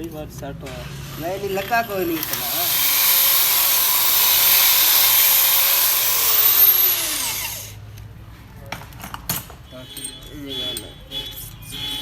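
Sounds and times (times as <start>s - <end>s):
power tool motor whining: 2.0s - 7.8s.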